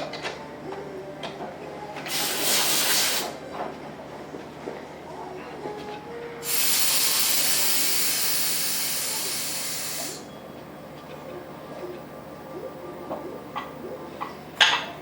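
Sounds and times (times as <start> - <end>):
pressurized gas hissing: 2.0 - 3.4, 6.4 - 10.3.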